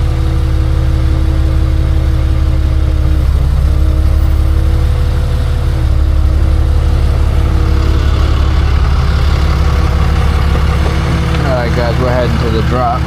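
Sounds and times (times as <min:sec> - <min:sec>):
tow truck engine running: 0:00.0 - 0:13.0
rushing noise: 0:03.2 - 0:12.4.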